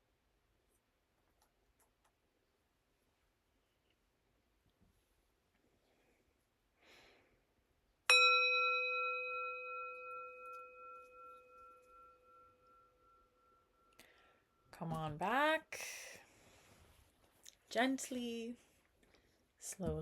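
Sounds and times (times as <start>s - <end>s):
singing bowl ringing: 8.1s - 14.7s.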